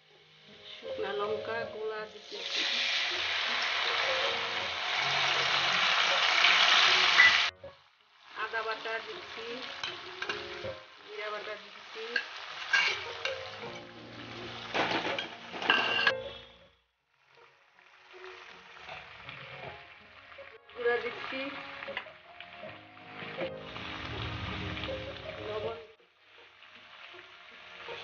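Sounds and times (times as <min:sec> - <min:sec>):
spatula scraping a pan: 0:12.2 - 0:13.8.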